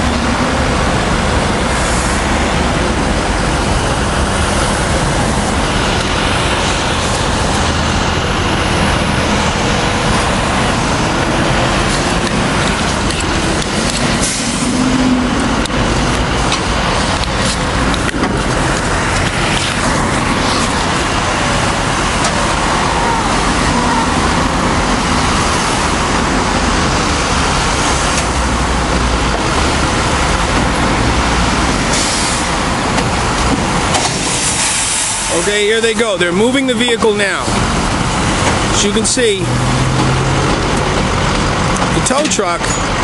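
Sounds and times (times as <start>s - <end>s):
traffic and vehicle engines: 0.0s - 43.0s.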